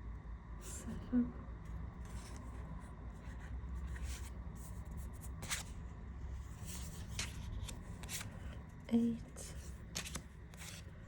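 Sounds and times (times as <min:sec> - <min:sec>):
cards flipping papery swishes: 0:06.6 - 0:08.4, 0:09.8 - 0:10.9.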